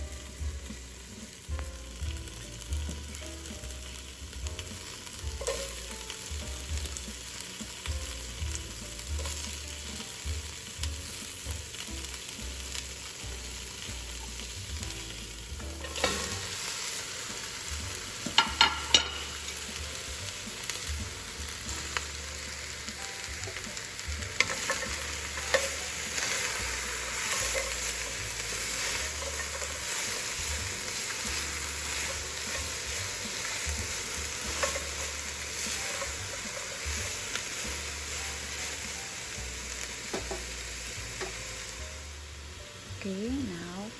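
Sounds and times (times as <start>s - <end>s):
vegetables sizzling in a pan: 0.0s - 43.9s
utensil knocking against pan: 18.3s - 19.3s.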